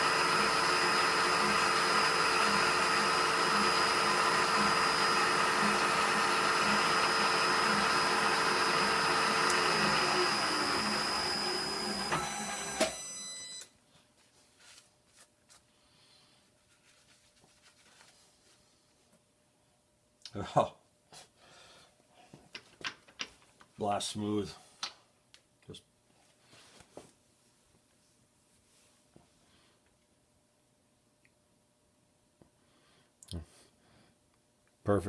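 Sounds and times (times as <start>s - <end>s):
machine spinning down with click: 0.0s - 13.7s
machine tool motor whine: 0.0s - 13.7s
small handling sounds: 13.9s - 19.2s.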